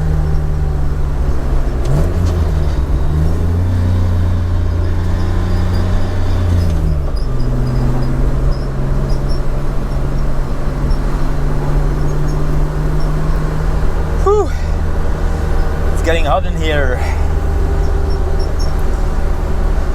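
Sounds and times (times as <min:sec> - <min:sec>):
car engine droning while driving: 0:00.0 - 0:19.9.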